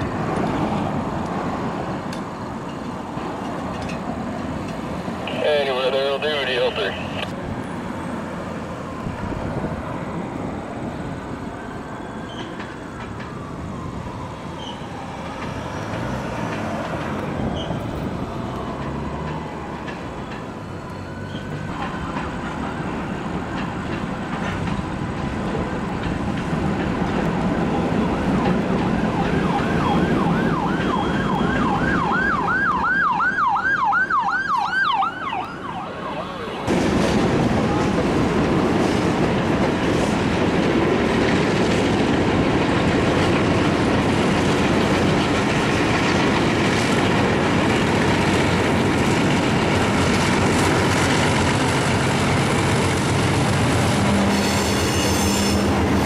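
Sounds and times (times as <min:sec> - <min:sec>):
freight train rumbling past: 0:00.0 - 0:32.9, 0:36.4 - 0:56.0
siren wailing and yelping: 0:29.0 - 0:36.7.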